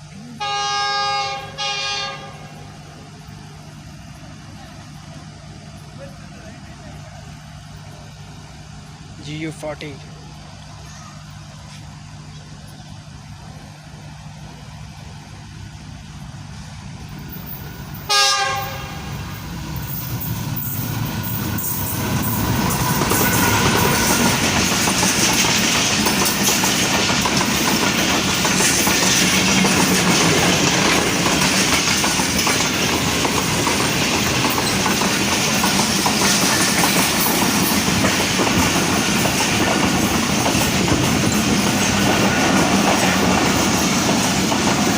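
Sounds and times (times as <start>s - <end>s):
locomotive engine hum: 0.0s - 44.9s
train horn blast: 0.2s - 2.8s, 18.1s - 19.3s, 23.0s - 24.6s
train wheels clickety-clack: 17.0s - 44.9s.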